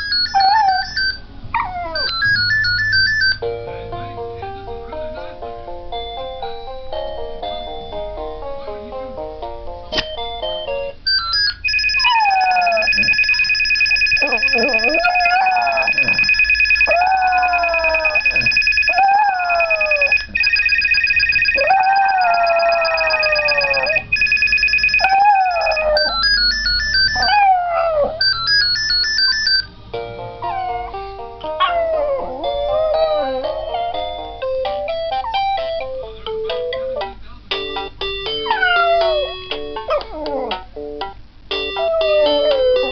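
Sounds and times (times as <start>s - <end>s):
phone ringtone melody: 0.0s - 1.2s, 1.8s - 3.6s, 10.1s - 27.5s, 28.2s - 29.7s, 37.6s - 40.0s
dog howling: 0.3s - 1.0s, 12.0s - 13.0s, 14.2s - 20.3s, 21.6s - 24.0s, 25.0s - 26.2s, 27.2s - 28.3s, 31.6s - 33.6s, 38.4s - 40.6s, 41.8s - 42.9s
steady high electronic tone: 11.4s - 27.3s.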